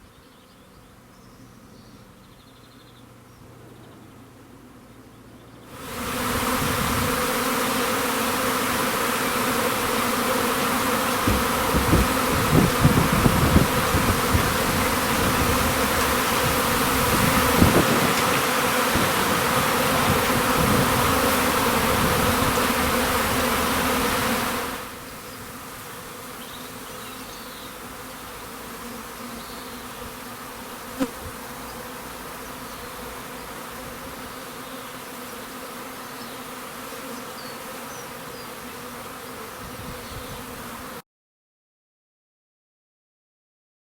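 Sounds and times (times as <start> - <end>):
bee swarm buzzing: 5.7 - 41.0
low thumps: 11.2 - 21.3.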